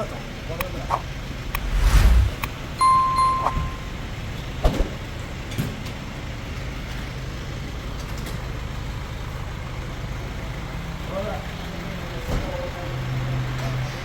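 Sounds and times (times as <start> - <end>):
car engine and road noise: 1.0 - 4.2.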